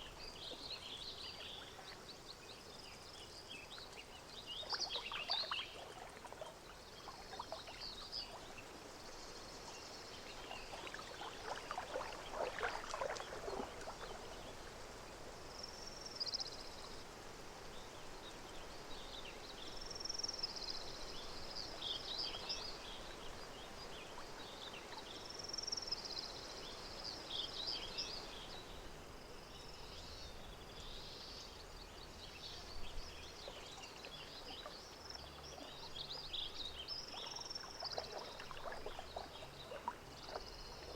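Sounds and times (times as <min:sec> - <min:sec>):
birds singing: 0:00.0 - 0:08.8, 0:30.0 - 0:40.9
gentle water: 0:00.0 - 0:40.9.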